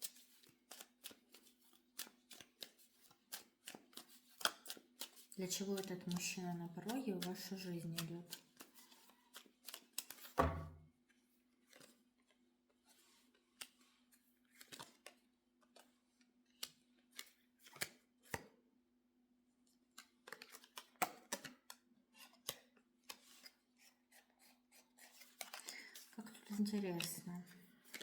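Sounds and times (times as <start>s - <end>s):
cards being shuffled: 0.0s - 10.6s, 12.9s - 15.9s, 16.6s - 18.4s, 20.0s - 23.5s, 24.5s - 27.2s.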